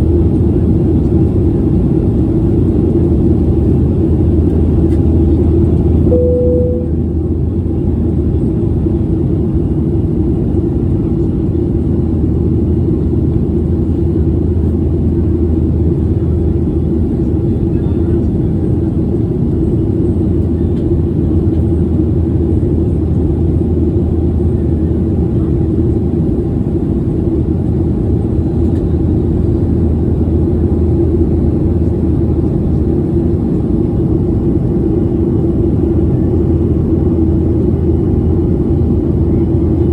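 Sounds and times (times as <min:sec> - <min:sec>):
jet airliner cabin rumble: 0:00.0 - 0:39.9
brief single tone: 0:06.1 - 0:07.2.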